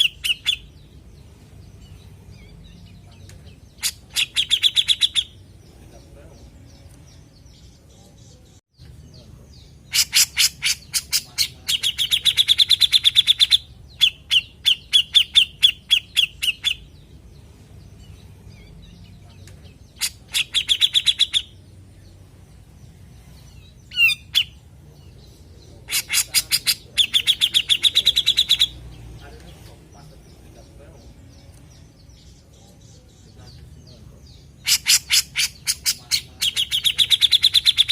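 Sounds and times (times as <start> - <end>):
bird chattering calls: 0.0 - 0.8, 1.9 - 5.6, 9.6 - 17.0, 18.1 - 21.6, 23.9 - 28.9, 34.2 - 37.9.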